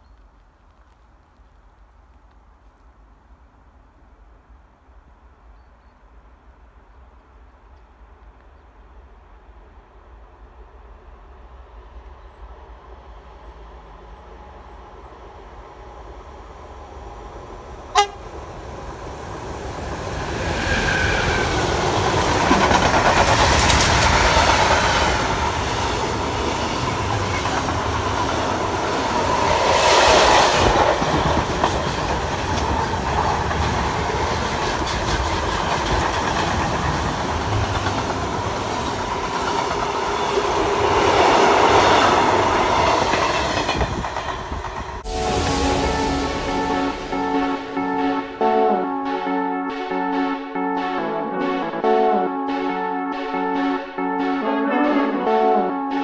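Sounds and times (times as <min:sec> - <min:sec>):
freight train passing: 0:09.6 - 0:56.0
brief sharp sound: 0:45.0 - 0:51.0.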